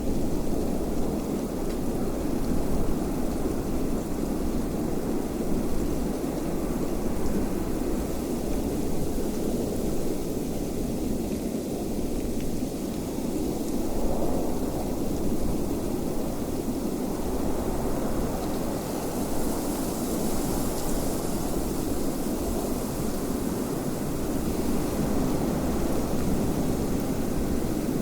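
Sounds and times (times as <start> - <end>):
wind blowing: 13.3 - 28.0.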